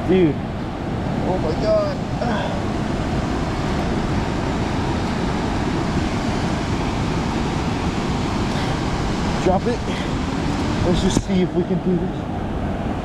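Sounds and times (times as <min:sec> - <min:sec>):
fast-flowing river roaring: 0:00.0 - 0:13.0.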